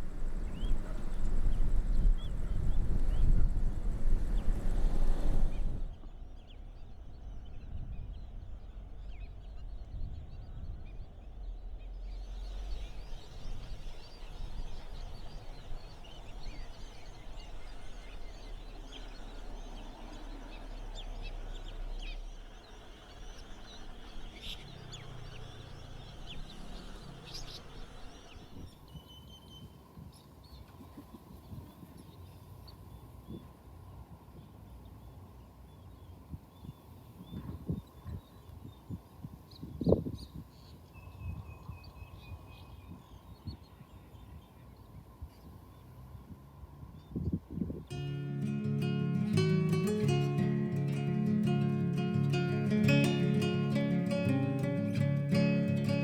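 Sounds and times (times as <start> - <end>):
birds calling: 0.0 - 29.6, 47.9 - 56.0
wind rumble on microphone: 0.0 - 35.0, 36.0 - 56.0.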